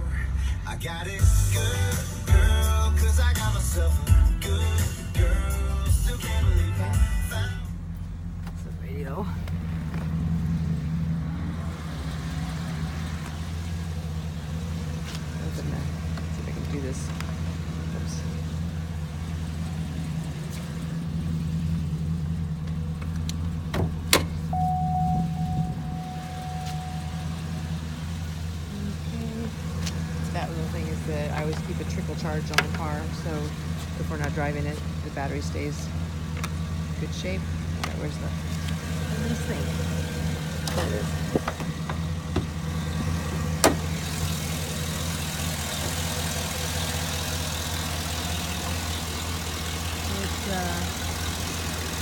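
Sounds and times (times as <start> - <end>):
car engine idling: 0.0 - 52.0
faint steady tone: 24.5 - 27.9.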